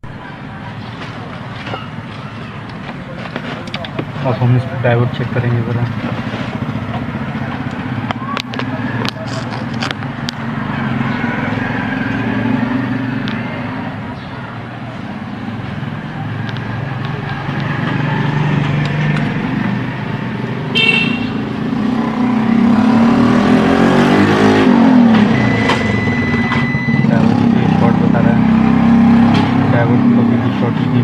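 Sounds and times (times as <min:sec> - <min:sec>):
road traffic: 0:00.0 - 0:31.0
vehicle engine revving: 0:04.9 - 0:14.1, 0:15.2 - 0:31.0
car horn toot: 0:20.7 - 0:21.4.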